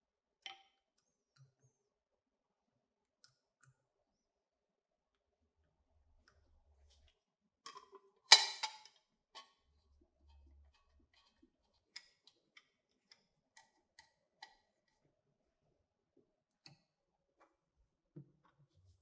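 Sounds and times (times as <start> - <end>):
sharp clatter of parts: 8.3 - 8.8.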